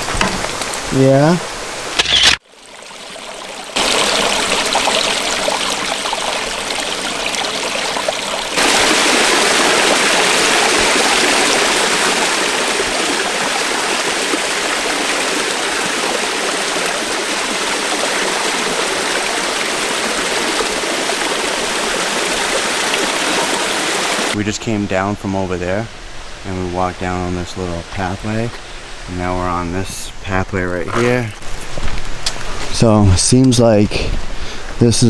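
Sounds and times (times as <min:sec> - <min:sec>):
waterfall pouring into pool: 0:02.4 - 0:24.4.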